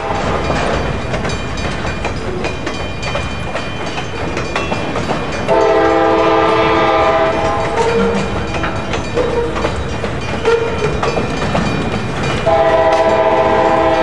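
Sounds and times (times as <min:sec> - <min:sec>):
distant locomotive horn: 0:00.0 - 0:00.4, 0:05.5 - 0:08.2, 0:12.5 - 0:14.0
train wheels clicking over rail joints: 0:00.0 - 0:14.0.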